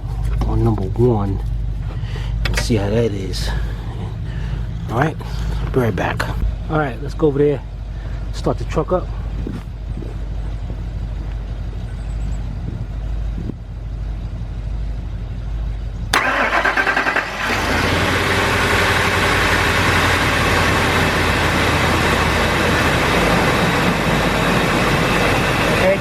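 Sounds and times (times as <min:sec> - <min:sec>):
engine idling: 0:00.0 - 0:26.0
starter motor cranking: 0:16.1 - 0:26.0.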